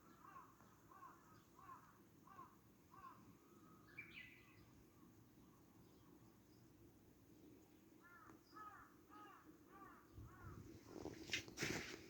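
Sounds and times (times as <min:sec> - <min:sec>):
faint bird calls: 0:00.0 - 0:04.7, 0:08.0 - 0:11.4.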